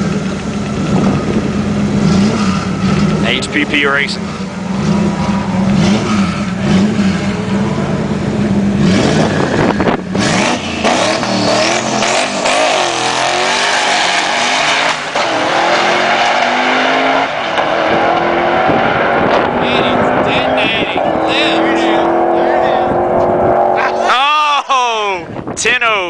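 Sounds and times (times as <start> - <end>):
drag car engine revving: 0.0 - 24.2.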